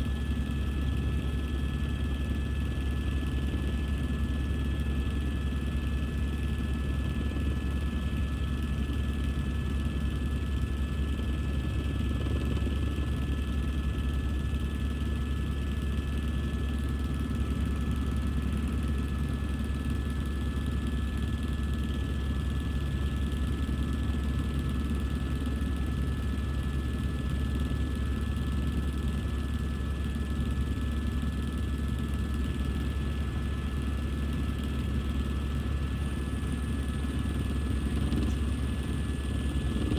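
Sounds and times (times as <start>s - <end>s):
helicopter rotor and engine drone: 0.0s - 39.9s
high turbine whine: 31.5s - 39.9s.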